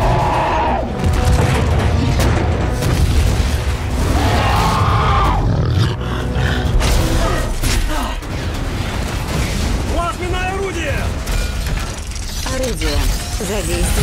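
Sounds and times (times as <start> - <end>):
monster roaring: 4.0 - 6.8.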